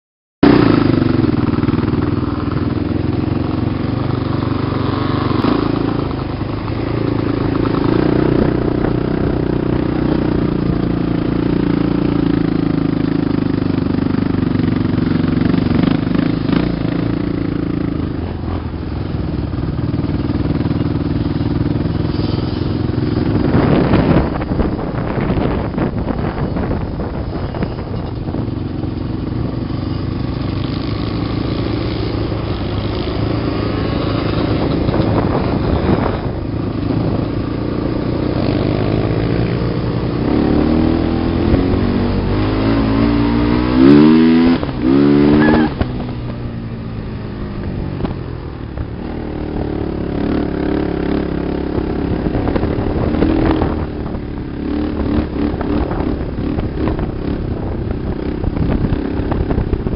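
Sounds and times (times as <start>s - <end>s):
off-road vehicle engines revving: 0.4s - 59.9s.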